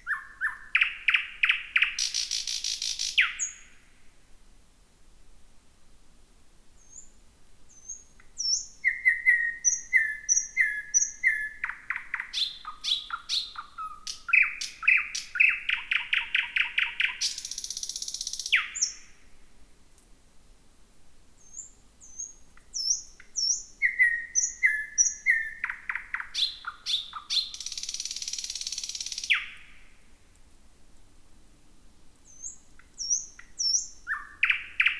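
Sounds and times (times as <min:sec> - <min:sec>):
nightingale singing: 0:00.0 - 0:03.8, 0:06.8 - 0:19.2, 0:21.4 - 0:29.9, 0:32.2 - 0:34.9.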